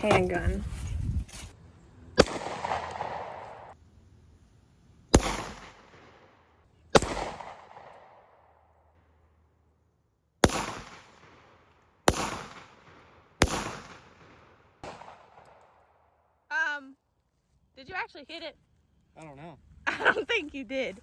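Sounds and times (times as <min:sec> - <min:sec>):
handgun shots with echo: 0:02.2 - 0:03.7, 0:05.2 - 0:06.1, 0:06.9 - 0:08.2, 0:10.4 - 0:11.4, 0:12.1 - 0:15.7.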